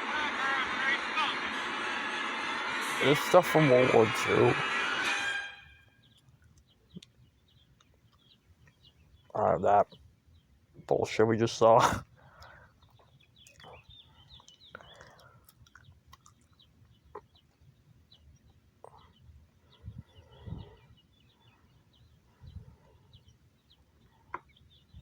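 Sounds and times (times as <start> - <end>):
bird chirps and clucks: 6.0 - 11.1, 12.2 - 25.0.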